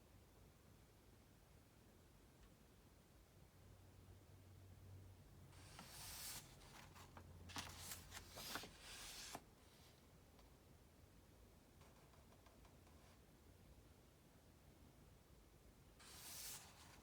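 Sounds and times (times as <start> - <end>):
book pages rustling: 5.6 - 9.4, 16.0 - 17.0.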